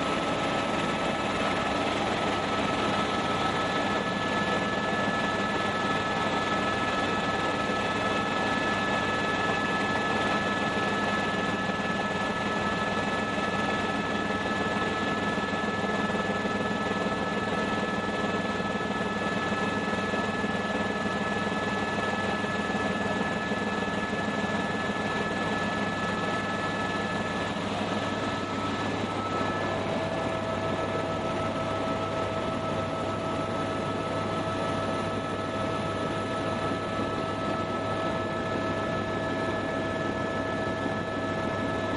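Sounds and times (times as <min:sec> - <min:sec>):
helicopter rotor and engine: 0:00.0 - 0:41.9.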